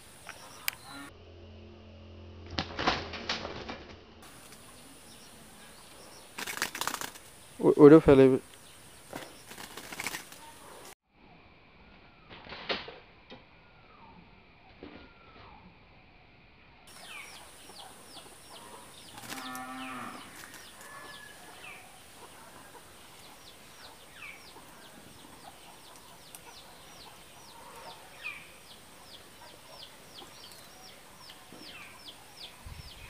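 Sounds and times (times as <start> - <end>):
small birds chirping: 0.0 - 1.1, 4.2 - 11.0, 16.9 - 33.0.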